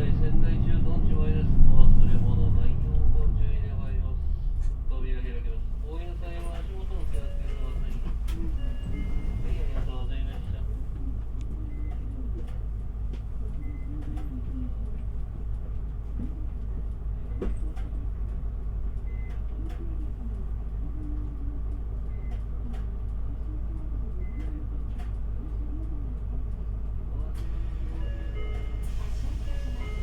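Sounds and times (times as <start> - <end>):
bus engine and road rumble: 0.0 - 30.0
clicks and rattles in cabin: 6.1 - 15.1, 17.4 - 18.4.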